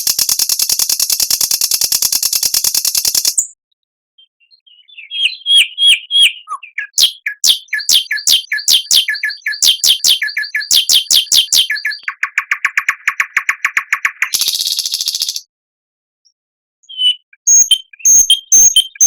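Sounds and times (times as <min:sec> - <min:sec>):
songbird singing: 0:04.2 - 0:15.5, 0:16.8 - 0:19.0.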